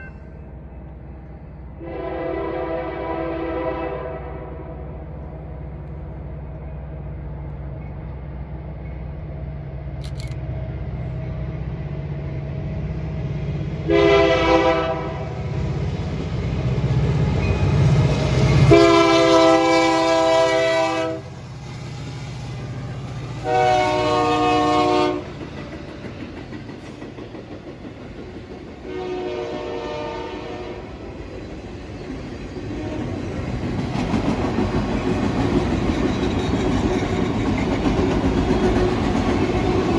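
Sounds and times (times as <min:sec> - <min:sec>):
diesel locomotive engine rumble: 0:00.0 - 0:39.9
train wheels on rails: 0:00.0 - 0:39.9
multi-tone air horn: 0:01.8 - 0:04.5, 0:13.9 - 0:15.3, 0:18.7 - 0:21.2, 0:23.4 - 0:25.2.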